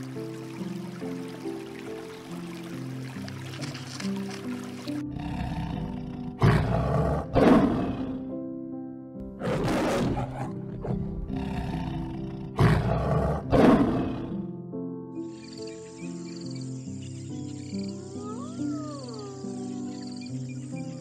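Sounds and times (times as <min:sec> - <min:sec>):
background music: 0:00.0 - 0:21.0
large animal roaring: 0:05.1 - 0:08.2, 0:09.4 - 0:14.4.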